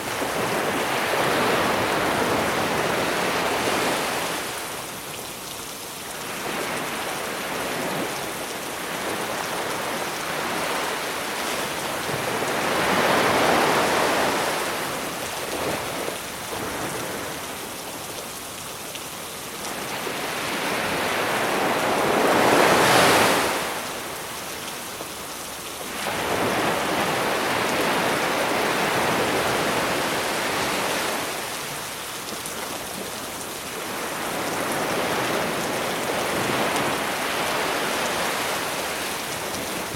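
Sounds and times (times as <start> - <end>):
sea waves washing onto beach: 0.0 - 39.9.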